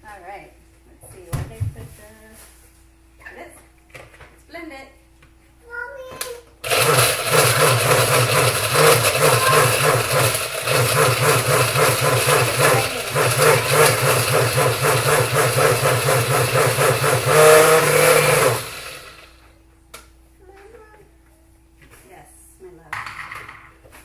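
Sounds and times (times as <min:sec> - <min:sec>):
blender motor blending ice: 0:06.6 - 0:19.4.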